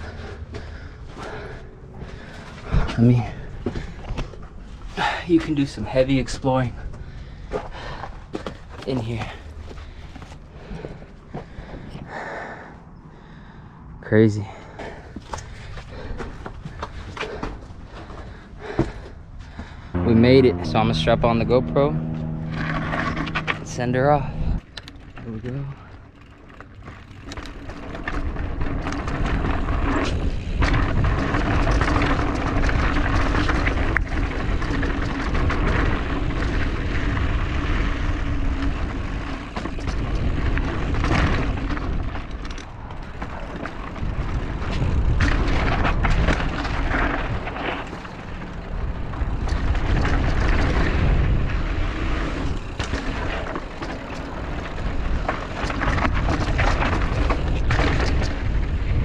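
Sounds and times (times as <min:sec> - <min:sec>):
bike knocking and rattling: 0:00.1 - 0:05.8, 0:06.8 - 0:12.0, 0:22.0 - 0:59.0
wind rumble on microphone: 0:19.3 - 0:25.7, 0:27.5 - 0:59.0
tyres running over dirt and rock: 0:24.9 - 0:59.0.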